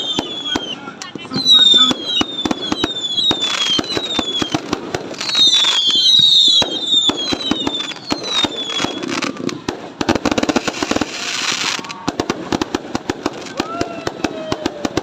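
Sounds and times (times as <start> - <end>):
falling whistle: 0.0 - 0.8, 1.4 - 4.6, 5.2 - 9.2
fireworks bangs and pops: 0.0 - 15.0
hissing crackle: 0.0 - 15.0.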